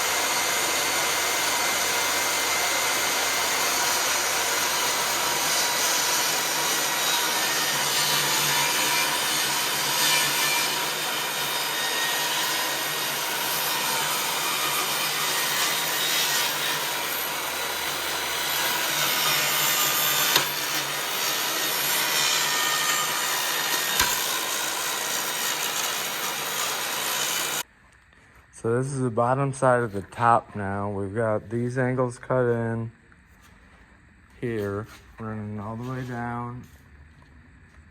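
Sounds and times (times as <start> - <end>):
power saw cutting wood: 0.0 - 27.6.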